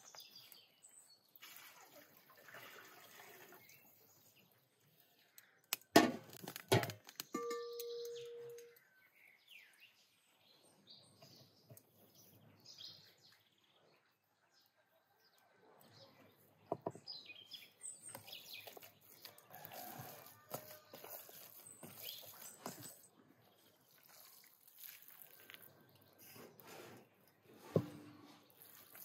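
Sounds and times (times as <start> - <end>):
brief ringing tone: 7.4 - 8.7
faint bird chirps: 7.4 - 16.5.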